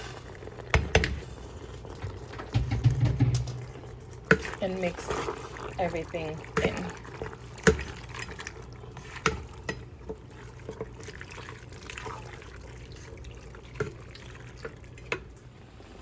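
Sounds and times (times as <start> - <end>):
wet stirring in a pot: 0.0 - 15.6
spoon knocking against pot: 2.5 - 4.5.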